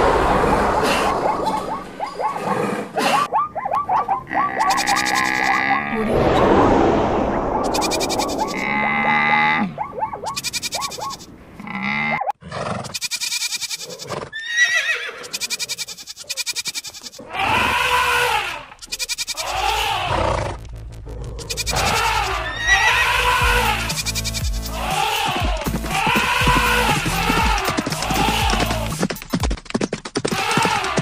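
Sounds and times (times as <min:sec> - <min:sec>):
farm animal calls: 0:01.2 - 0:06.0, 0:07.7 - 0:20.5, 0:21.4 - 0:29.0
goat bleating: 0:04.3 - 0:05.9, 0:13.0 - 0:20.2, 0:21.5 - 0:28.9.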